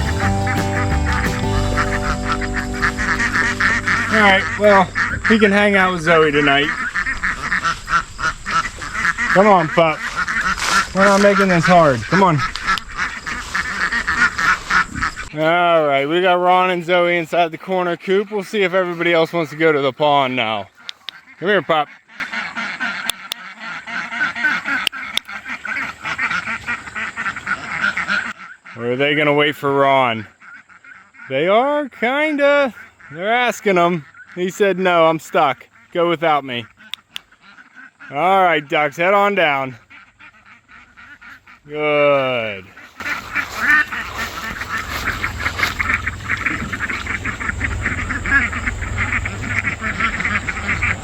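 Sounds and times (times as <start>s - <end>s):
low steady rumble: 0.0s - 7.4s, 43.1s - 51.0s
ducks quacking: 0.0s - 31.6s, 32.2s - 51.0s.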